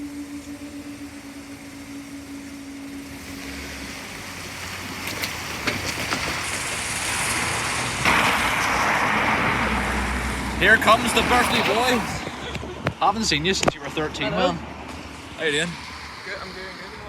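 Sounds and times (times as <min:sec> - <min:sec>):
two steady tones: 0:00.0 - 0:05.1
vehicle approaching: 0:00.0 - 0:17.0.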